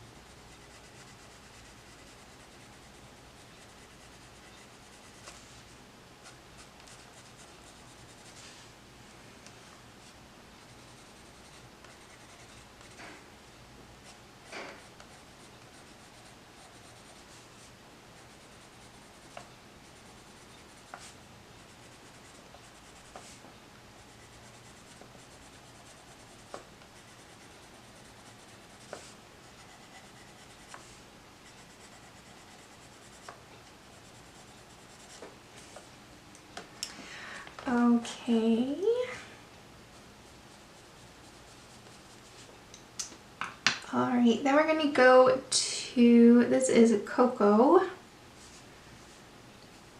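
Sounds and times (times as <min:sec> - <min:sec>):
pencil scratching on paper: 0:00.2 - 0:08.5, 0:10.0 - 0:13.2, 0:14.0 - 0:23.4, 0:24.0 - 0:35.2, 0:40.2 - 0:42.4.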